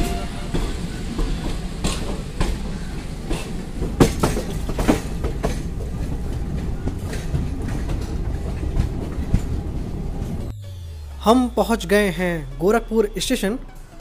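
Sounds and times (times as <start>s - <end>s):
wheels clacking over rail joints: 0.0s - 10.5s
train rumble: 0.0s - 12.8s.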